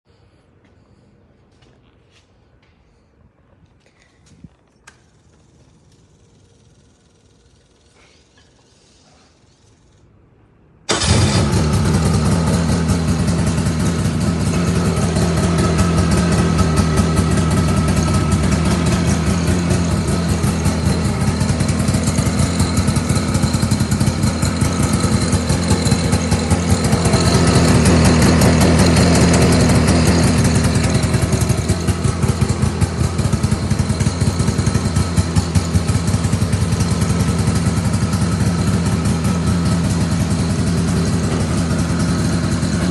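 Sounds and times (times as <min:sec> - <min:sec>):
fire pump engine running: 0:10.9 - 0:42.9.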